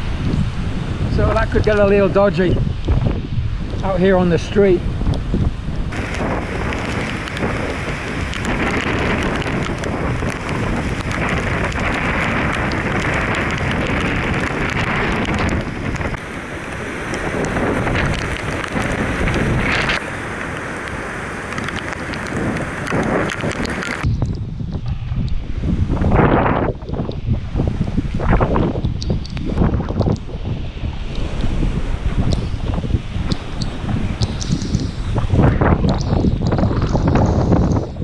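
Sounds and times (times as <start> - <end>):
strong wind: 0.0 - 38.0
wind buffeting microphone: 0.0 - 38.0
heavy rain: 5.9 - 24.1.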